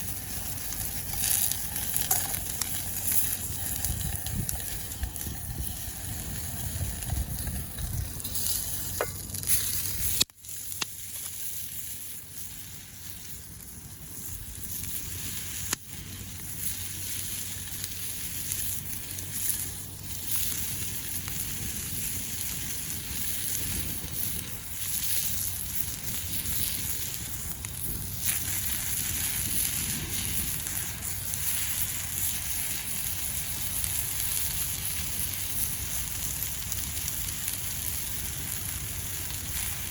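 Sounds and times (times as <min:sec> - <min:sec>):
campfire crackles: 0:00.0 - 0:39.9
food sizzling in a pan: 0:00.0 - 0:39.9.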